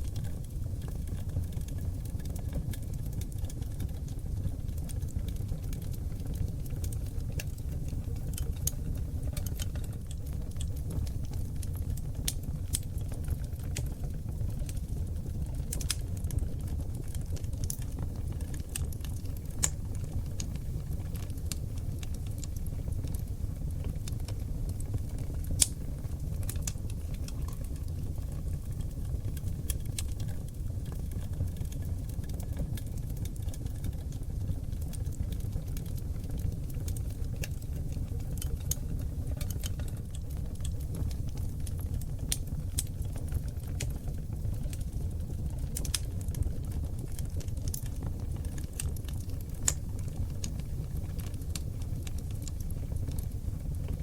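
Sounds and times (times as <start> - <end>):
fire crackling and popping: 0.0 - 54.0
low rumble of flames: 0.0 - 54.0.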